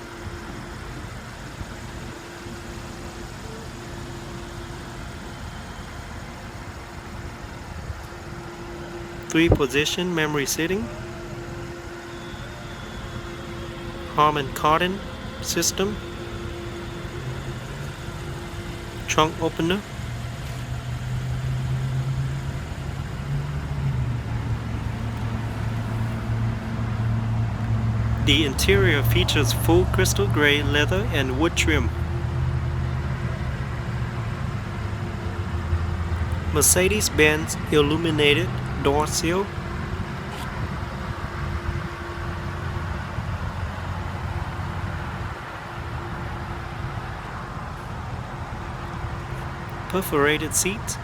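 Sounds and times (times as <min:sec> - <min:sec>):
car engine idling: 0:24.2 - 0:32.8, 0:46.0 - 0:51.0.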